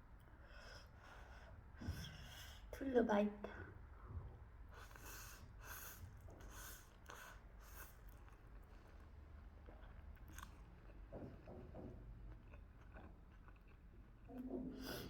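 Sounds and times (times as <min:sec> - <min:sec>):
person chewing food: 0:05.8 - 0:14.5.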